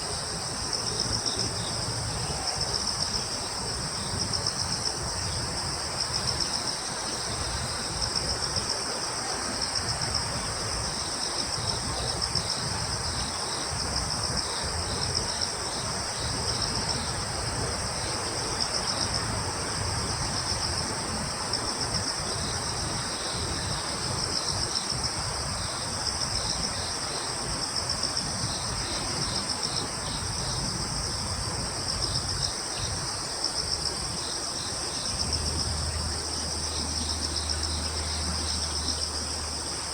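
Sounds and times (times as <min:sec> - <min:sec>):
crickets chirping in pulses: 0:00.0 - 0:39.9
crickets trilling: 0:00.0 - 0:39.9.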